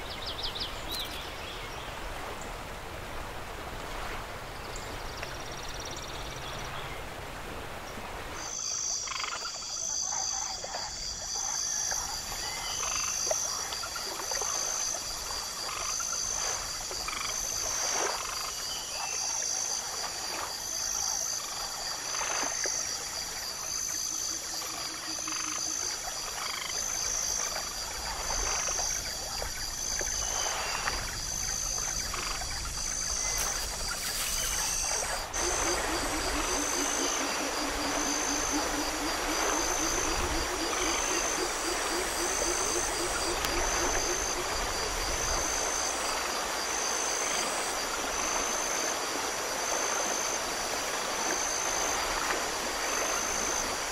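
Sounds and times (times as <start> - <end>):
frogs and insects trilling: 4.0 - 6.9, 8.0 - 53.9
frog croaks: 8.4 - 18.8, 23.8 - 49.0.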